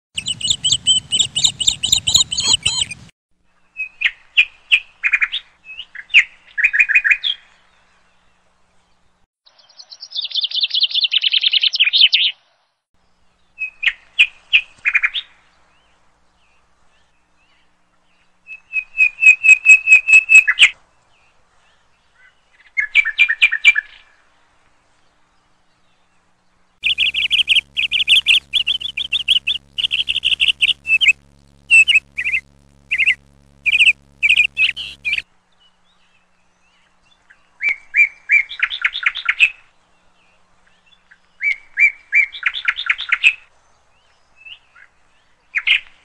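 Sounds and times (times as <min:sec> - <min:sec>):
bird chirping and trilling: 0:00.2 - 0:03.1, 0:26.8 - 0:35.2.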